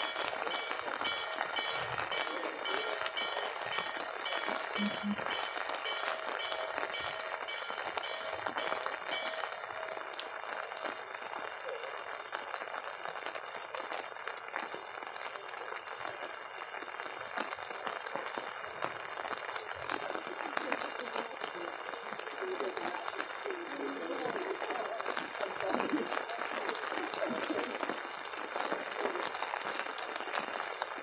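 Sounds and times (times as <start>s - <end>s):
rain pattering: 0.0s - 31.0s.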